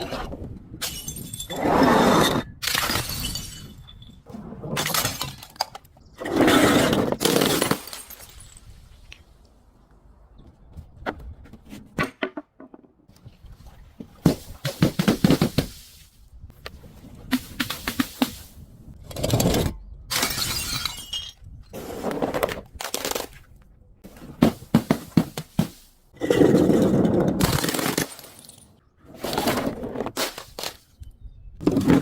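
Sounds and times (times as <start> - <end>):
glass bottles shattering: 0.8 - 1.6, 2.6 - 4.2, 4.8 - 5.7, 7.2 - 8.8, 20.1 - 21.5, 27.4 - 28.8.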